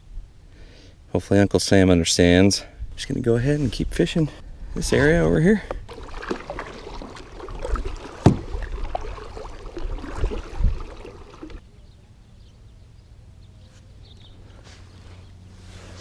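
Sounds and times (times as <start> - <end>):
kayak paddle strokes and knocks: 5.0 - 11.6.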